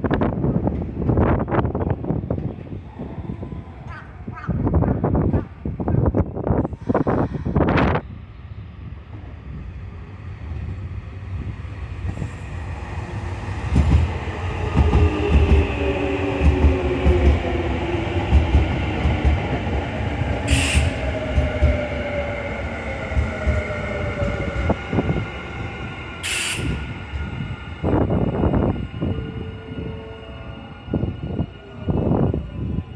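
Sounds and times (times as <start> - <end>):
train motor whine: 20.5 - 21.8, 26.2 - 28.5.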